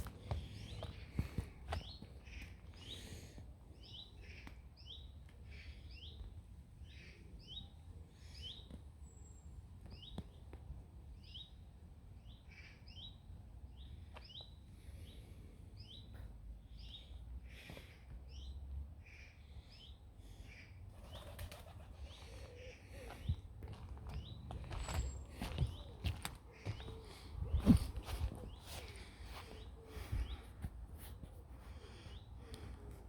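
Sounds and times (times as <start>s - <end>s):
songbird chirping: 22.0s - 30.6s.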